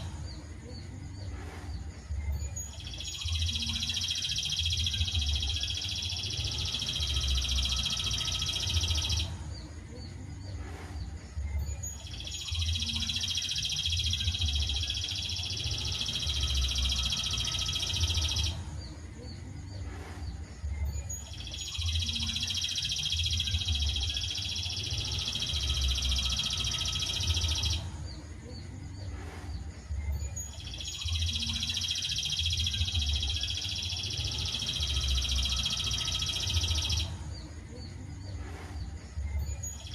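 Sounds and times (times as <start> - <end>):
high-pitched bird trill: 2.1 - 10.6, 11.4 - 19.9, 20.6 - 29.1, 29.9 - 38.4, 39.2 - 39.9.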